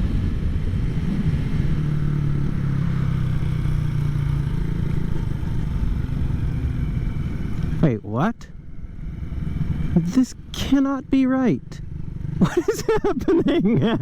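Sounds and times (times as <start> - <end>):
motorcycle engine cruising: 0.0 - 14.0
road noise: 0.0 - 14.0.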